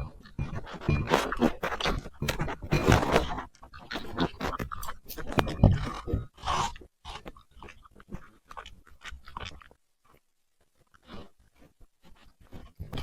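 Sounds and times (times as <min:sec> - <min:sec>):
puppy chewing and crunching food: 0:00.0 - 0:13.0.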